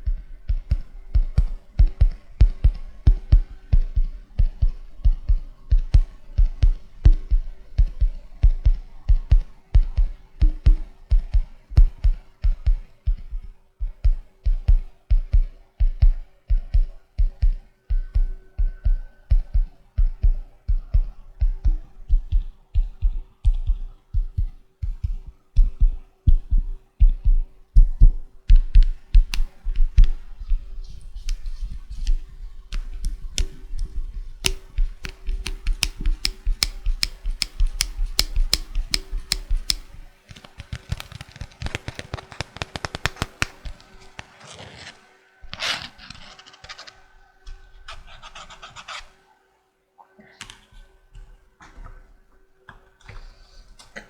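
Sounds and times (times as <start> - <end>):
fingers tapping on floppy disk: 27.8 - 44.3.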